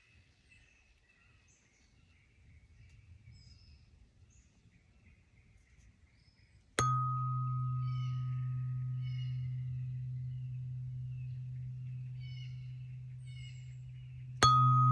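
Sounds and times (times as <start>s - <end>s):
small birds chirping: 0.5s - 14.9s
tuning fork ringing hum: 6.8s - 14.9s
tuning fork struck with click: 6.8s - 14.9s.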